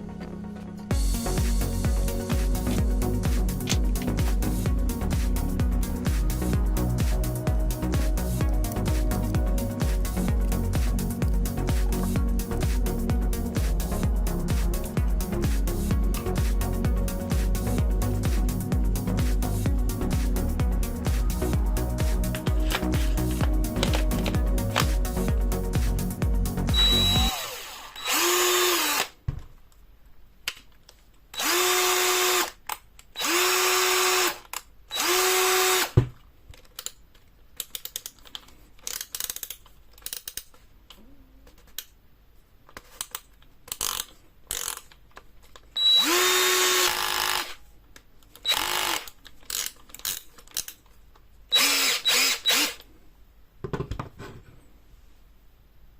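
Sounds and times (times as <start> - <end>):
cordless drill spinning: 22.2 - 25.0, 26.7 - 29.2, 31.4 - 32.6, 33.2 - 36.0, 45.8 - 47.6, 48.4 - 50.2, 51.5 - 52.8.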